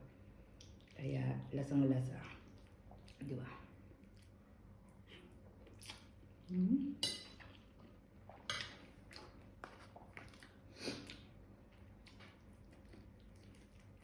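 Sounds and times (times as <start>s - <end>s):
faint chewing: 4.0s - 6.6s, 7.2s - 14.0s.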